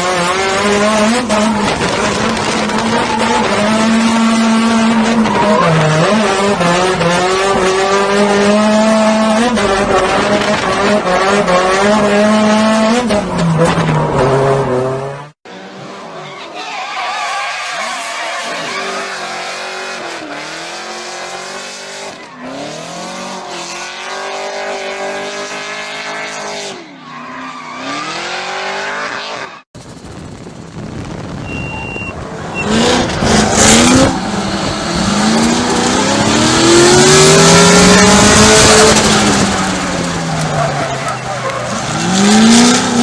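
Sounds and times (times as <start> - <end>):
car engines revving: 0.0 - 16.4, 17.8 - 43.0
tyres squealing: 31.5 - 43.0.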